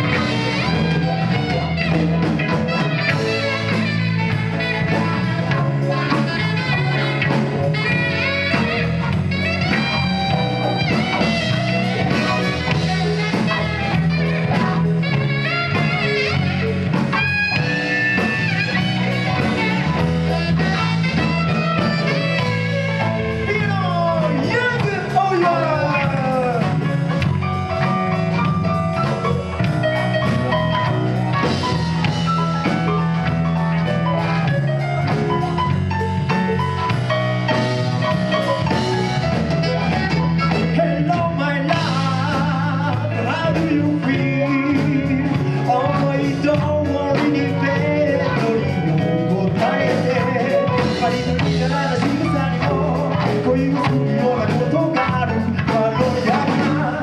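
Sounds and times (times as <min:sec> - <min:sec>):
bass and drum beat: 0:00.0 - 0:57.0
live rock and roll band: 0:00.0 - 0:57.0.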